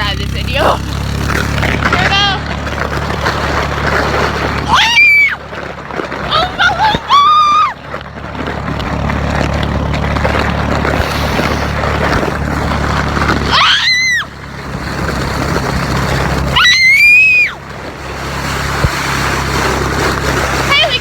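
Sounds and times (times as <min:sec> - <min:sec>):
four-wheeler engine running: 0:00.0 - 0:21.0
high-pitched screams: 0:04.7 - 0:05.4, 0:06.3 - 0:07.8, 0:13.5 - 0:14.3, 0:16.5 - 0:17.6.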